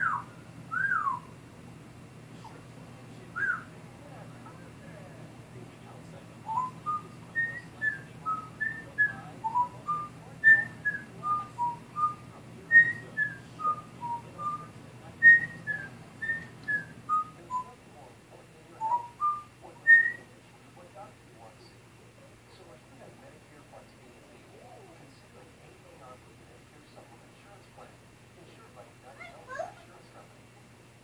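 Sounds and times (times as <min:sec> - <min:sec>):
parrot whistling a tune: 0:00.0 - 0:01.3, 0:03.4 - 0:03.7, 0:06.4 - 0:17.7, 0:18.8 - 0:20.3.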